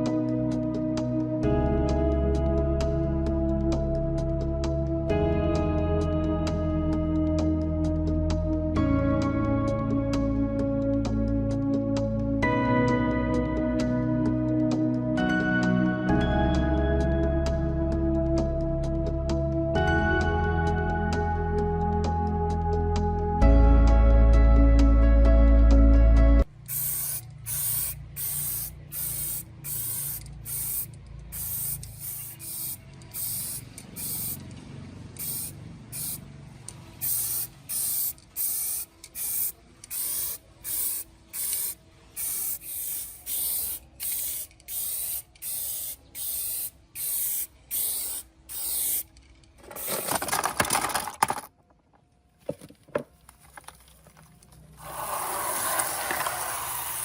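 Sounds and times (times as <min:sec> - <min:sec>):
spray hissing bursts: 0:26.7 - 0:34.4, 0:35.2 - 0:36.2, 0:37.0 - 0:49.0, 0:54.8 - 0:57.0
long rush of spray: 0:54.8 - 0:57.0.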